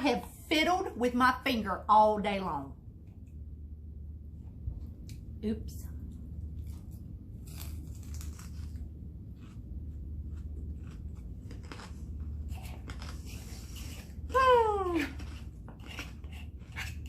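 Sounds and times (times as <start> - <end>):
person chewing crunchy food: 6.4 - 14.3.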